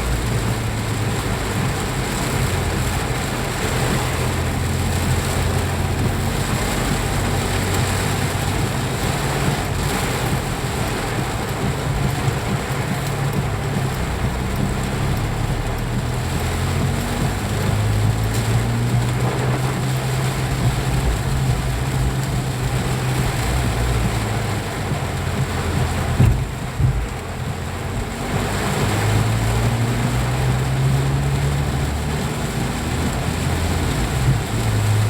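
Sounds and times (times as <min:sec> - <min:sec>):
steady rain: 0:00.0 - 0:35.0
vehicle engine hum: 0:00.0 - 0:35.0.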